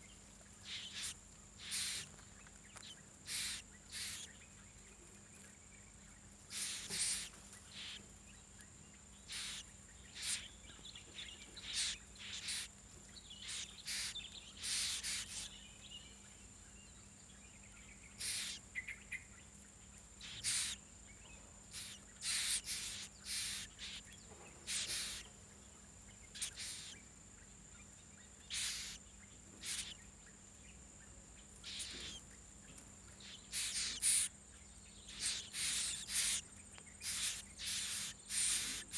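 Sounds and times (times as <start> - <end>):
bird harsh calls: 0.6 - 2.1, 3.3 - 4.4, 6.5 - 8.1, 9.2 - 12.8, 13.4 - 15.6, 18.1 - 19.1, 20.2 - 20.8, 21.7 - 25.3, 26.3 - 27.1, 28.5 - 30.0, 31.6 - 32.3, 33.1 - 34.4, 35.0 - 38.9
high-pitched insect-like whine: 0.6 - 2.1, 9.3 - 10.5, 11.6 - 12.7, 13.4 - 15.5, 18.2 - 18.7, 20.2 - 20.8, 21.7 - 24.0, 24.7 - 25.2, 26.3 - 27.0, 28.5 - 29.0, 29.6 - 30.0, 31.6 - 32.2, 33.2 - 34.4, 35.1 - 38.9.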